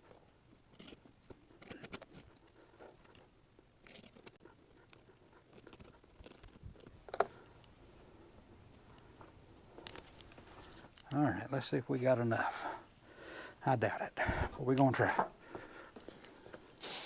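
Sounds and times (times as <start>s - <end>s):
small crackles: 0.0s - 7.8s, 8.7s - 11.2s.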